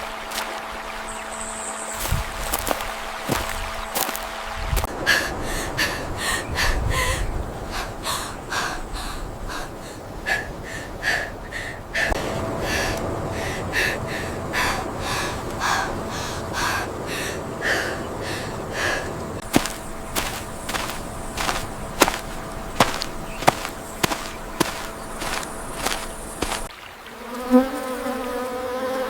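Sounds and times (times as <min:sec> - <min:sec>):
person gasping breaths: 0:05.1 - 0:26.6
low background rumble: 0:11.3 - 0:26.7.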